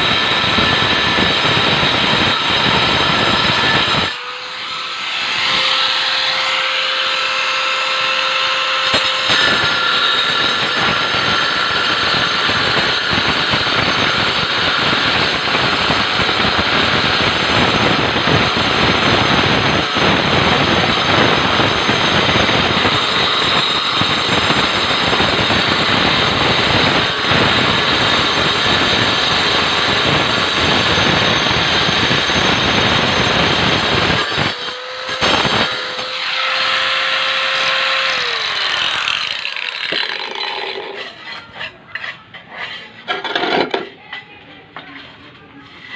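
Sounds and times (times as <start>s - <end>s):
grinder cutting ceramic: 0.0s - 45.9s
grinder disc whining: 0.0s - 45.9s.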